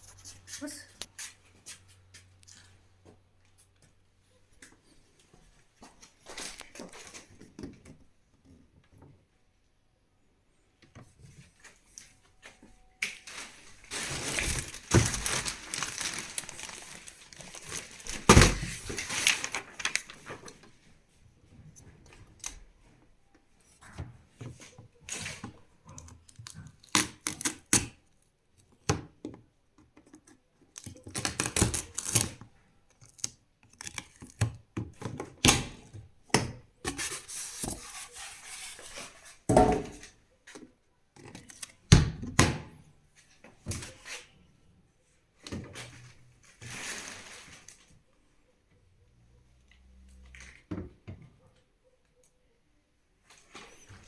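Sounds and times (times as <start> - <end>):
packaging tearing and crinkling: 13.3 - 20.4, 26.3 - 27.9, 30.8 - 32.4.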